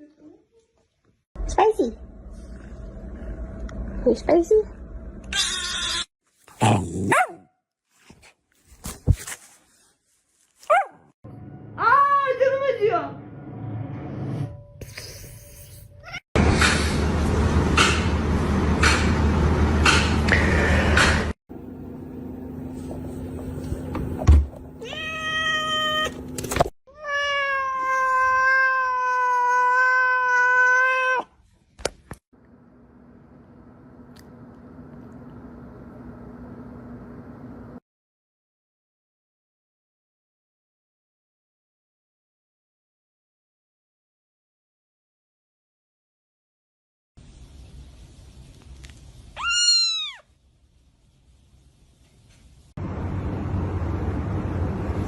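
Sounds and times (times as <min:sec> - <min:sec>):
dog barking and growling: 0:06.5 - 0:07.5, 0:10.6 - 0:11.1
cat meowing: 0:24.8 - 0:26.1, 0:26.9 - 0:31.3, 0:49.4 - 0:50.3.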